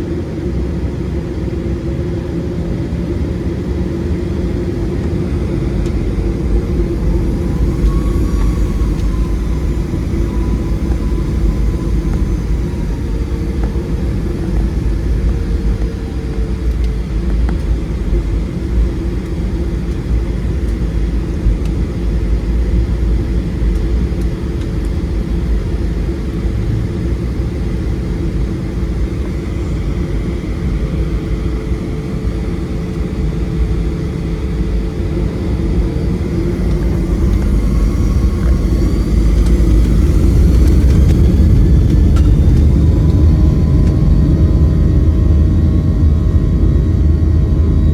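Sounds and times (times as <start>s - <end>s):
airplane cabin rumble: 0.0s - 47.9s
faint steady hum: 0.0s - 47.9s.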